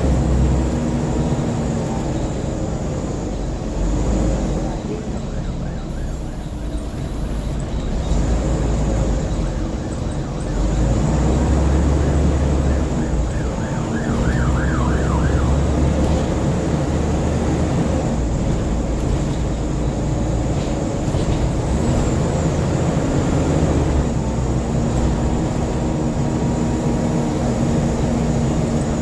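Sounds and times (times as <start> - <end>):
bus diesel engine and road noise: 0.0 - 29.0
emergency siren yelping: 5.1 - 7.4, 9.2 - 17.3.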